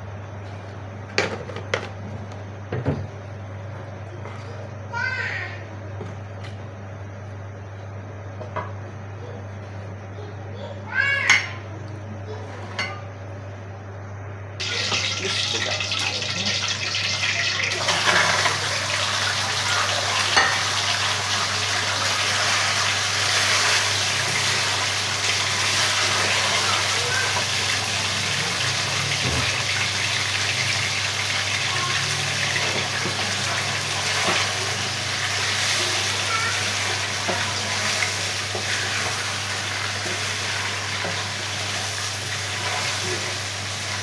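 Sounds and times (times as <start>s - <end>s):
chicken sizzling in a pan: 14.6s - 44.0s.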